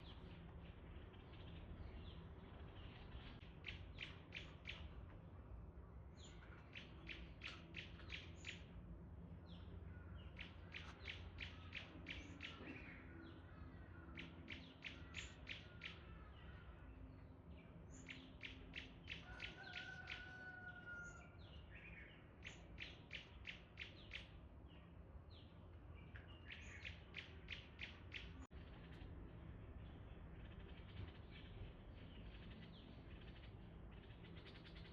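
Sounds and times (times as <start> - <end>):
bird chirping: 9.4 - 29.1, 29.8 - 34.9.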